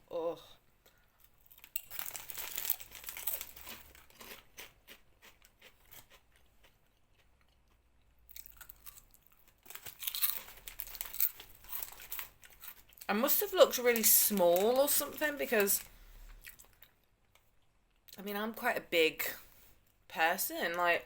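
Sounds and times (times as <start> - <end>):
crunching and crinkling: 1.2 - 17.4.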